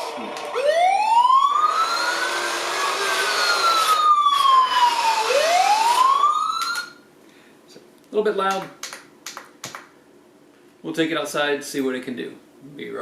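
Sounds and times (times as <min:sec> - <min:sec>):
electronic wailing toy siren: 0:00.5 - 0:07.0.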